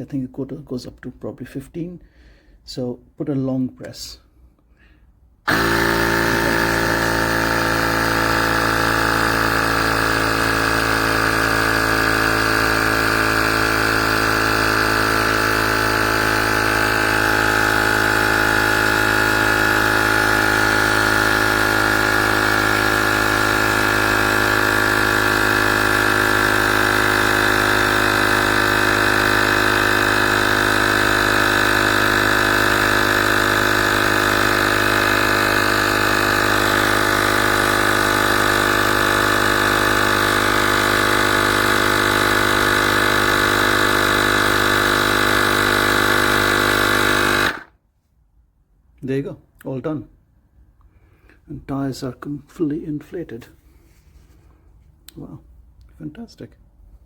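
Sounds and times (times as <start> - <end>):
air compressor droning: 4.8 - 47.8.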